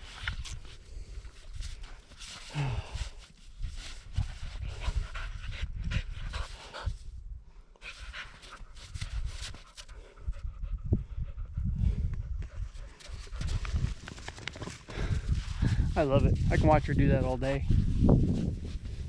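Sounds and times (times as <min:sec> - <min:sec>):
wind buffeting microphone: 0:03.6 - 0:19.0
dog panting hard: 0:04.6 - 0:07.0, 0:07.8 - 0:14.0.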